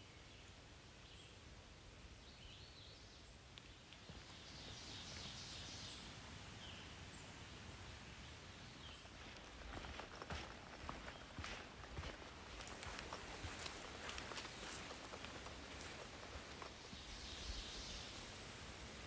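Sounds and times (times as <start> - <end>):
faint woodland ambience: 0.0 - 19.0
footsteps on leafy dirt trail: 8.8 - 18.2.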